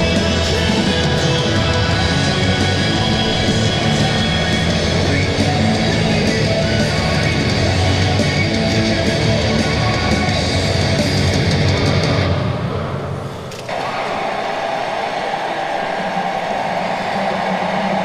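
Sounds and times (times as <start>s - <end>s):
fast drum beat: 0.0s - 11.9s
distorted guitar: 0.0s - 13.8s
heavy metal music: 0.0s - 18.0s.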